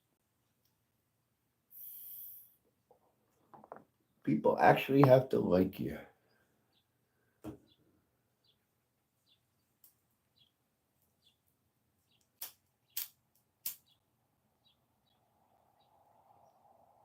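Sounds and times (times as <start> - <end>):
small bird chirping: 6.2 - 17.0.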